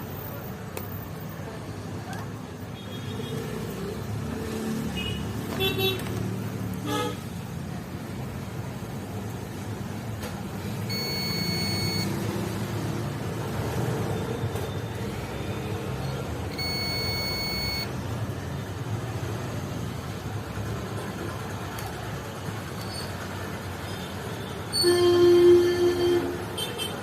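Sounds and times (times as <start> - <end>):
long high electronic beeps: 10.9 - 12.2, 16.6 - 17.9.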